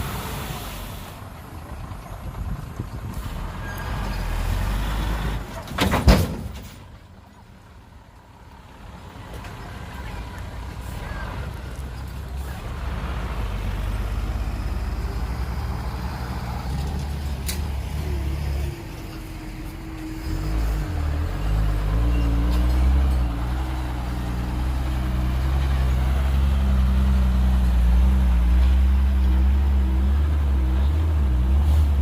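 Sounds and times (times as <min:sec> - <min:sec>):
diesel engine under load: 0:00.0 - 0:32.0.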